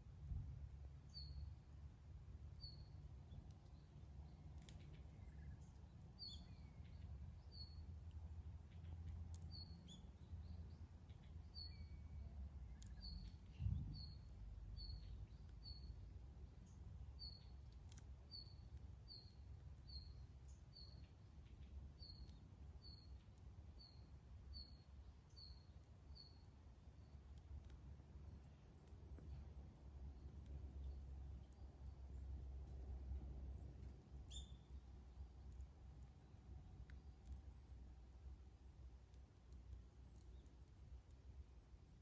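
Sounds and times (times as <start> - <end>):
campfire crackling: 0.0 - 11.6, 16.2 - 28.1, 30.3 - 42.0
low outdoor rumble: 0.0 - 24.5, 26.5 - 42.0
bird chirping: 1.0 - 1.6, 2.4 - 32.4, 33.2 - 37.7, 38.5 - 42.0.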